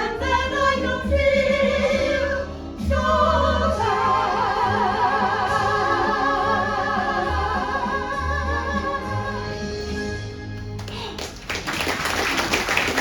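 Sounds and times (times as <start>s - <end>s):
voices singing with vibrato: 0.0s - 10.2s.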